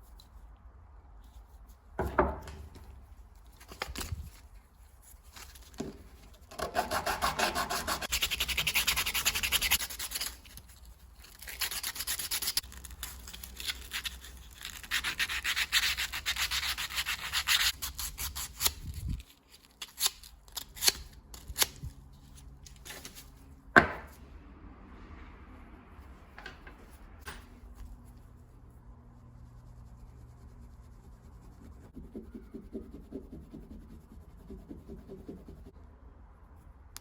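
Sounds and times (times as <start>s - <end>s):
hand-sanding brass: 6.6s - 9.8s.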